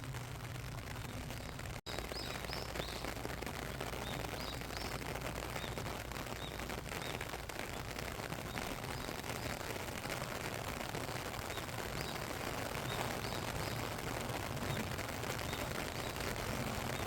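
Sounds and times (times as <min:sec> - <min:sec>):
rain falling: 0:00.0 - 0:17.0
small bird chirping: 0:01.1 - 0:09.7, 0:11.5 - 0:14.0, 0:14.6 - 0:17.0.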